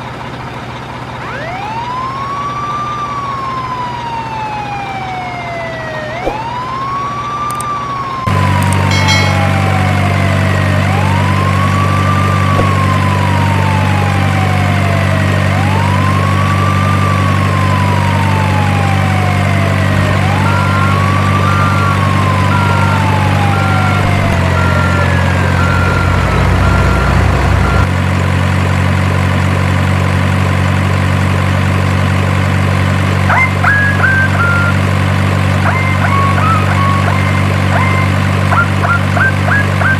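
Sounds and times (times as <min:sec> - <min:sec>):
low electronic engine hum: 0:00.0 - 0:39.9
electronic siren wailing: 0:01.2 - 0:27.9, 0:33.2 - 0:39.9
beeping: 0:20.2 - 0:27.9, 0:35.7 - 0:39.9.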